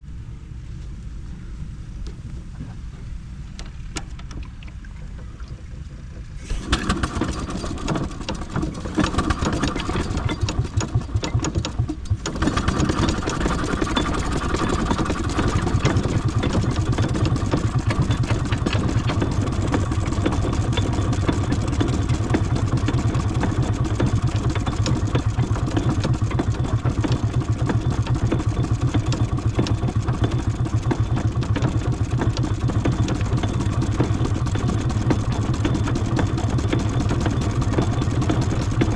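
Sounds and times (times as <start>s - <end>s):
miniature steam engine chuffing: 6.2s - 38.9s.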